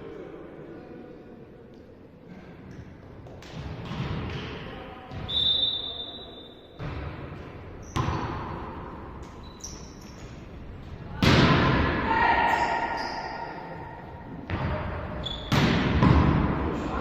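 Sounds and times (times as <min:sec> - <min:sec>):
volleyball being struck: 0:15.4 - 0:16.6.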